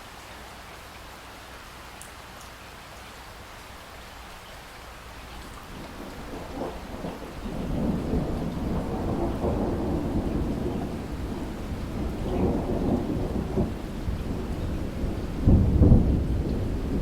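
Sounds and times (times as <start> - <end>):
heavy rain: 0.0 - 17.0
thunder rumbling: 5.4 - 17.0.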